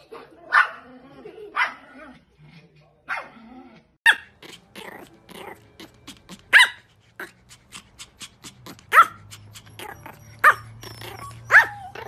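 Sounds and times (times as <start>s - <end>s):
small dog barking: 6.5s - 6.9s, 8.8s - 12.0s.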